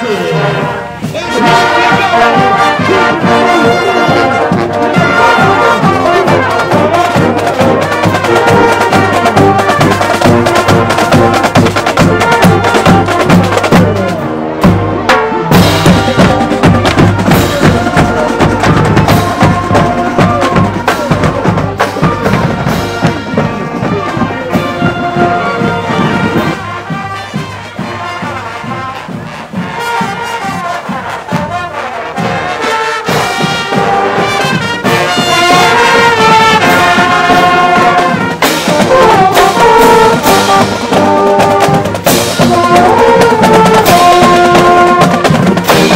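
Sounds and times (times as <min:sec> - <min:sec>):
marching band brass: 0:00.0 - 0:45.9
steady drum beat: 0:00.1 - 0:45.9.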